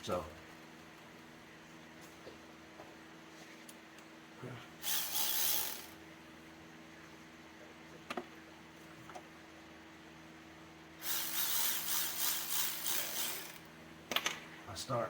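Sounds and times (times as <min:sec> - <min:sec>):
cordless ratchet whirring: 0:04.8 - 0:06.0, 0:11.0 - 0:13.7.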